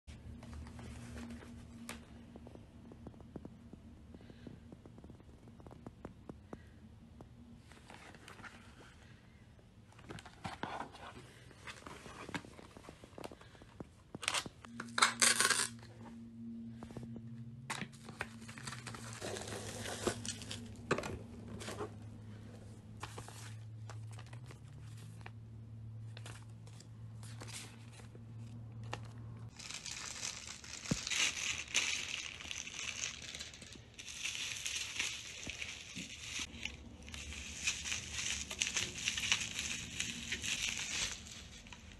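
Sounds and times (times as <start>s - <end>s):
plastic wrap crinkling: 29.5s - 41.9s.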